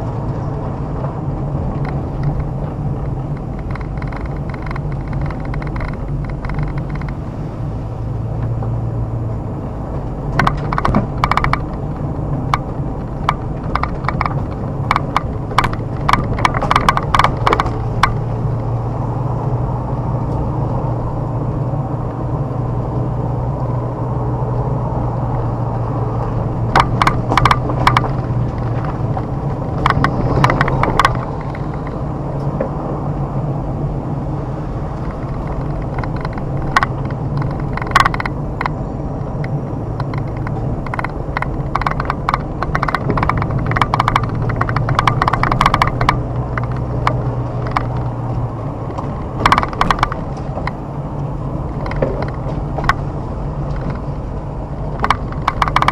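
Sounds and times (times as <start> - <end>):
car engine running: 0.0 - 55.9
rapid sharp clicks and rattles: 1.5 - 7.3, 10.3 - 18.8, 25.1 - 32.7, 34.5 - 55.9.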